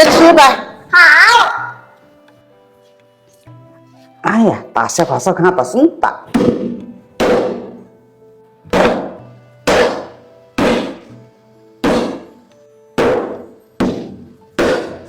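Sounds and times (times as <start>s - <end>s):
soft background music: 0.0s - 15.0s
heavy thumps: 6.3s - 7.9s, 8.7s - 11.2s, 11.8s - 12.4s, 13.0s - 15.0s.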